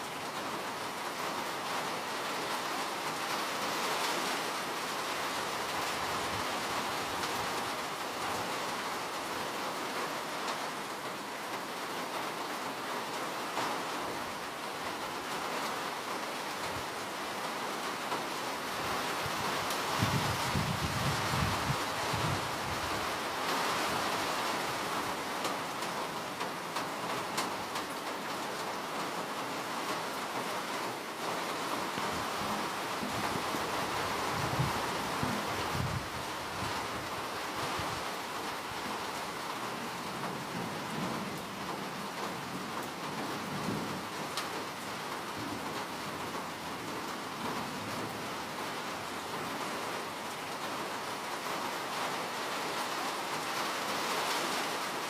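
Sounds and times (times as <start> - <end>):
rain hissing: 0.0 - 55.0
rain drop ticks: 44.3 - 44.6.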